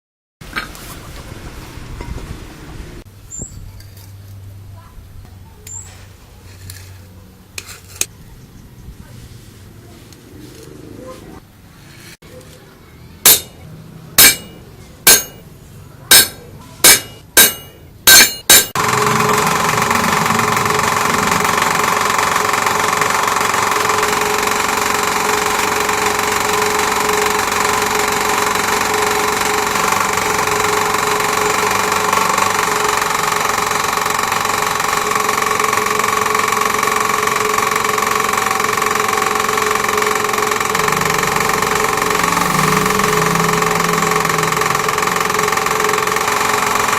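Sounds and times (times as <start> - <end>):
sharp knocks: 13.3 - 13.6, 14.2 - 15.4, 16.1 - 18.8
lathe motor humming and whining: 18.7 - 46.9.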